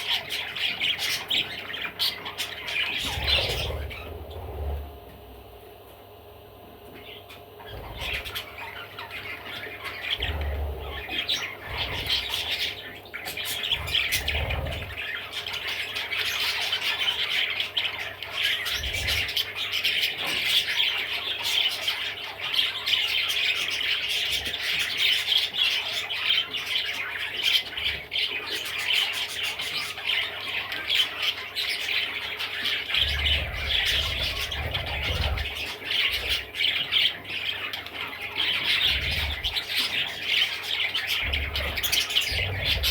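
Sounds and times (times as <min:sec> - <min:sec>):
budgerigar chattering and warbling: 0:00.0 - 0:05.0, 0:07.0 - 0:42.9.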